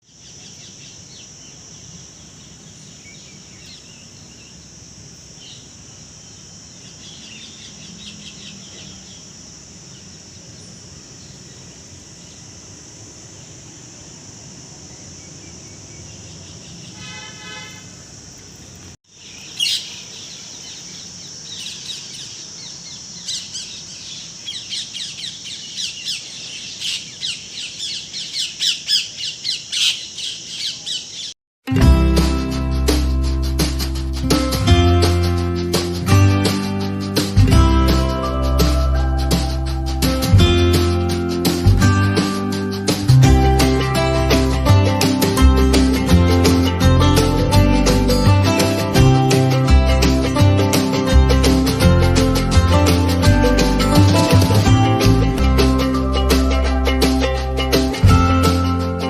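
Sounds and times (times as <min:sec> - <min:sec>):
birds chirping: 0:00.0 - 0:31.4
high-pitched hiss: 0:00.0 - 0:59.0
bird squawks: 0:19.5 - 0:20.1, 0:24.5 - 0:31.3.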